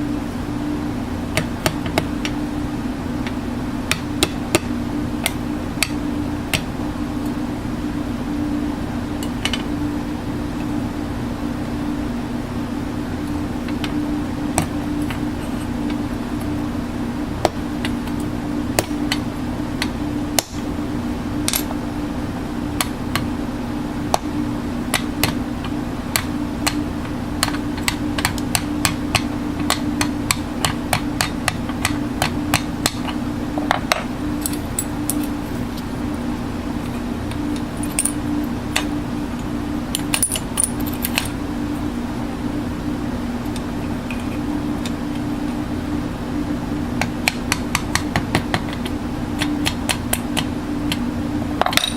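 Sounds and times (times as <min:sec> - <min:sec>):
steady low hum: 0:00.0 - 0:51.9
sharp taps and clicks: 0:26.1 - 0:26.8, 0:27.4 - 0:34.1, 0:47.0 - 0:51.0.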